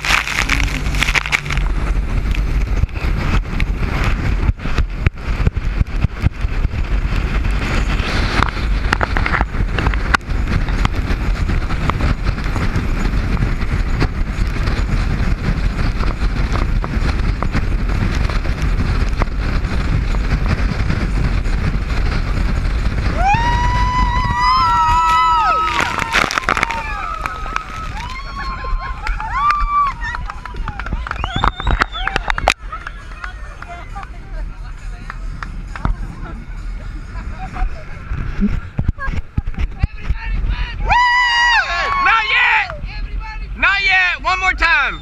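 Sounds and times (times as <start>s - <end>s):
speedboat rushing across water: 0.0s - 45.0s
wind buffeting microphone: 0.0s - 45.0s
loud high held cry: 40.8s - 42.8s.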